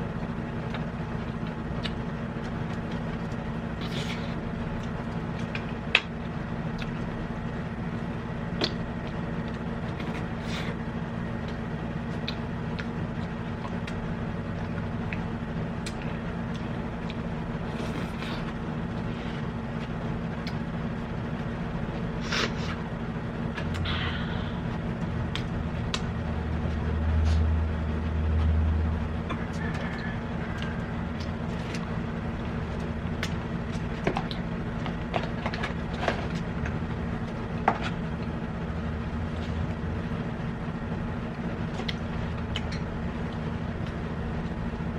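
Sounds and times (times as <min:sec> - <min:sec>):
steady background hum: 0:00.0 - 0:44.9
low rumble: 0:22.8 - 0:37.5.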